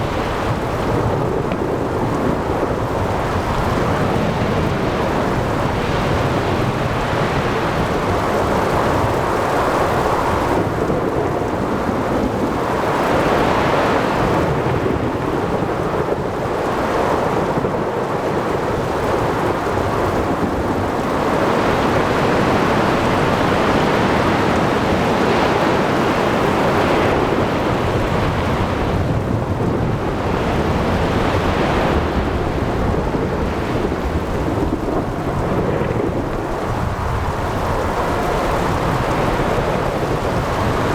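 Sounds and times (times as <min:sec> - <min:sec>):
heavy rain: 0:00.0 - 0:40.9
thunder rumbling: 0:21.4 - 0:40.9.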